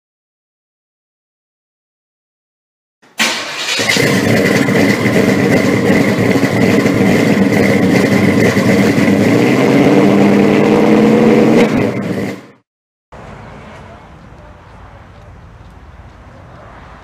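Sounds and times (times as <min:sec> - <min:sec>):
car engine running: 0:03.6 - 0:12.6.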